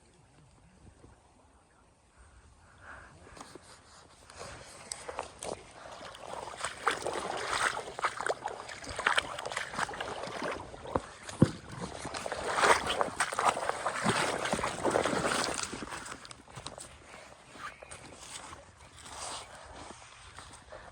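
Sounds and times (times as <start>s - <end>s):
river water splashing: 4.4s - 20.7s.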